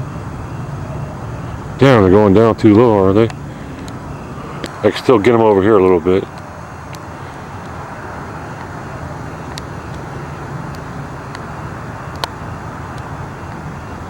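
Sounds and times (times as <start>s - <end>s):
low outdoor rumble: 0.0s - 14.0s
faint clicks: 2.7s - 4.0s, 12.1s - 13.6s.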